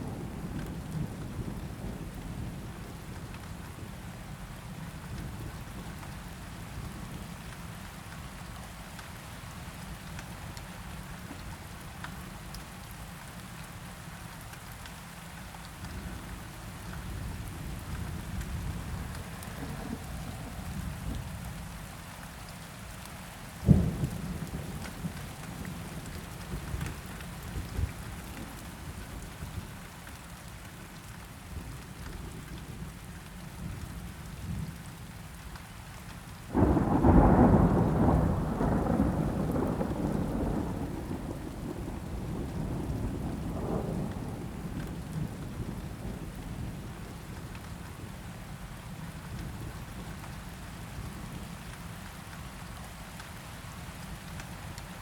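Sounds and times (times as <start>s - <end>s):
steady rain: 0.0s - 55.0s
thunder rumbling and cracking: 23.6s - 28.0s, 36.5s - 47.2s.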